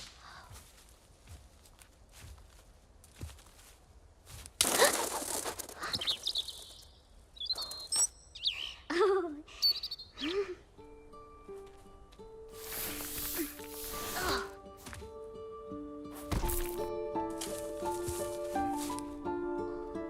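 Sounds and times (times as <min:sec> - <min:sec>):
soft music notes: 0:10.4 - 0:20.0.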